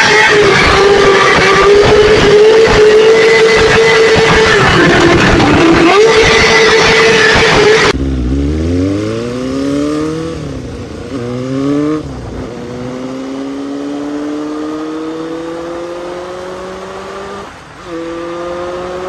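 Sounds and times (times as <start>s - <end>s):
motorcycle engine accelerating: 0.0s - 19.0s
loud rushing sound: 4.2s - 13.4s.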